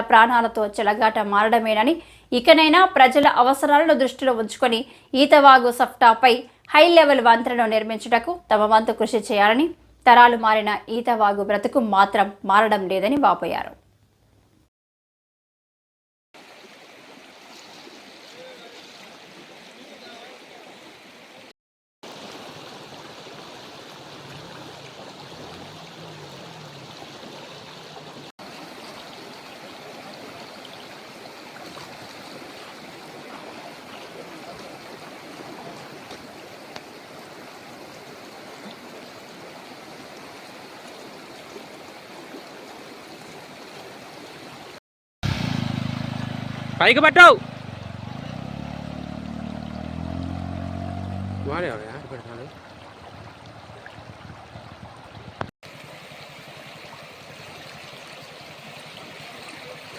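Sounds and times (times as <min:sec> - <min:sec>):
floodwater rushing: 0:16.4 - 0:59.9.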